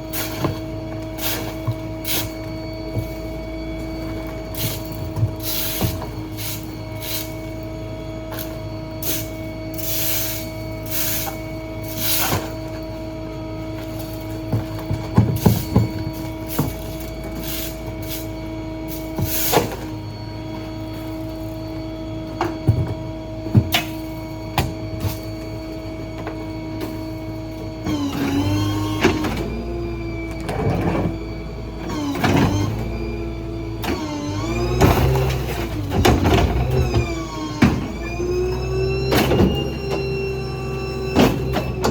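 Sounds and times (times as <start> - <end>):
faint even whine: 0.0 - 41.9
garbage truck engine hum: 0.0 - 41.9.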